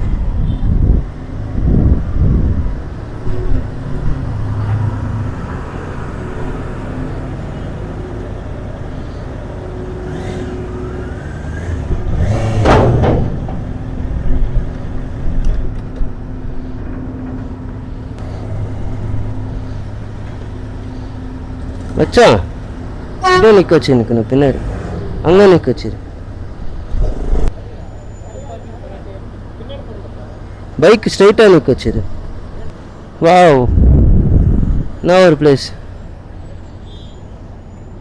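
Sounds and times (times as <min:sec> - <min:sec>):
vehicle engines humming: 0:00.0 - 0:38.0
short knocks: 0:12.2 - 0:14.0.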